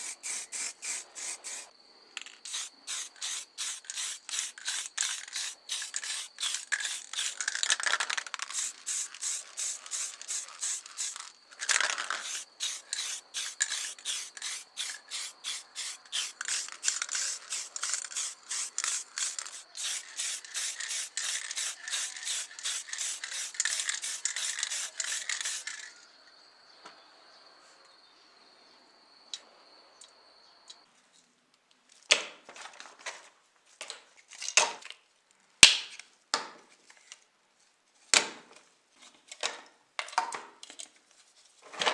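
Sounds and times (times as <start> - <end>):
sandpaper sanding strokes: 0.0 - 1.7, 2.5 - 7.4, 8.3 - 11.3, 12.2 - 25.7.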